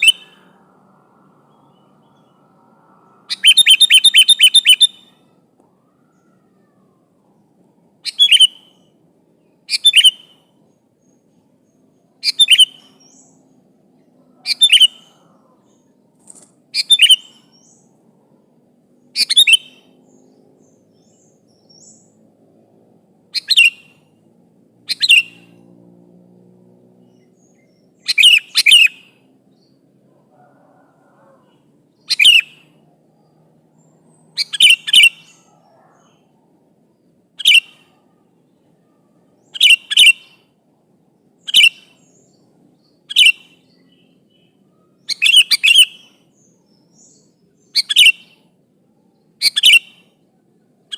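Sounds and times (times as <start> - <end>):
bulbul giving sharp calls: 0.0 - 0.6, 3.2 - 5.2, 7.9 - 13.5, 14.3 - 17.9, 19.1 - 22.2, 23.2 - 24.2, 24.8 - 25.6, 27.1 - 38.2, 39.4 - 40.6, 41.2 - 44.0, 44.7 - 48.6, 49.2 - 50.2.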